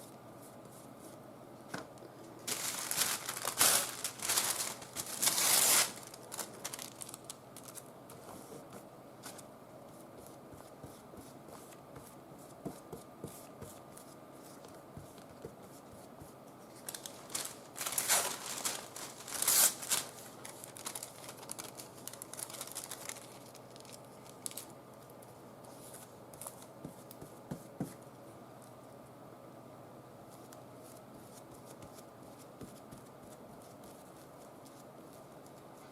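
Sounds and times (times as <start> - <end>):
tissue paper rustling: 2.4 - 8.5, 16.8 - 24.7.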